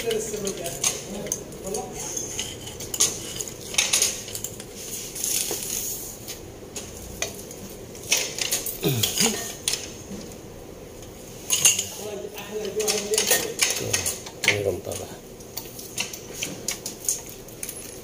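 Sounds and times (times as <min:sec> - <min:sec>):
metal tools clinking: 0:08.0 - 0:10.0, 0:11.5 - 0:18.0.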